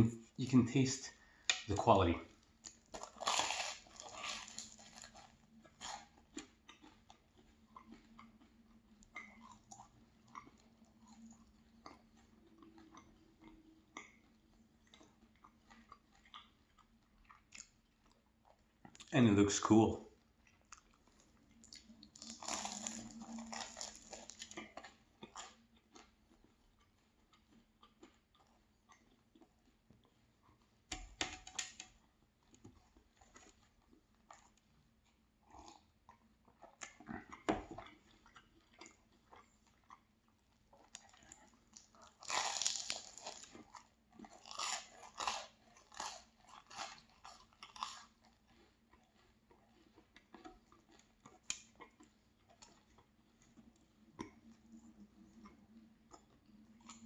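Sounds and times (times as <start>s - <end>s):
person chewing crisp pastry: 0.2s - 57.0s.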